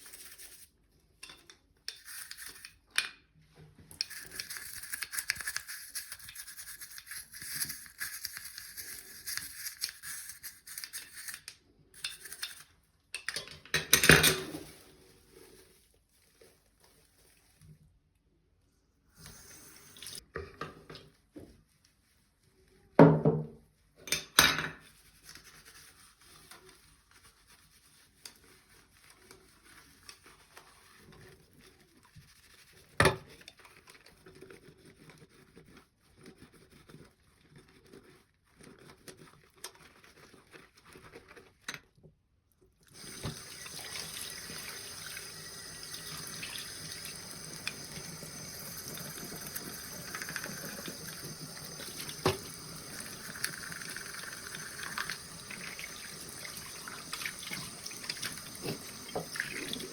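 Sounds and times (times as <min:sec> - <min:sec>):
water running from a tap: 0:19.2 - 0:20.2, 0:42.9 - 0:59.9.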